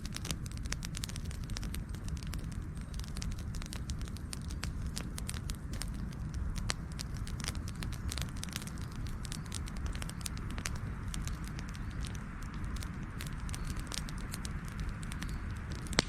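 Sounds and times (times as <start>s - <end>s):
low rumble of flames: 0.0s - 16.0s
wood fire crackling: 0.0s - 16.0s.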